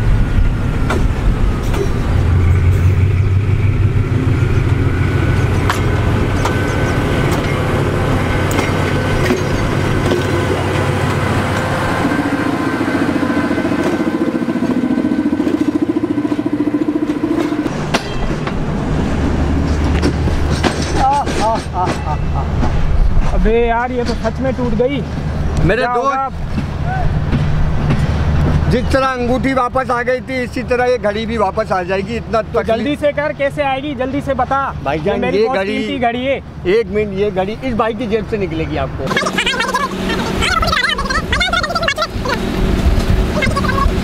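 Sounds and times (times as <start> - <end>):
train wheels rumbling on rails: 0.0 - 44.0
wheels clicking over rail joints: 4.4 - 11.7, 19.6 - 24.8.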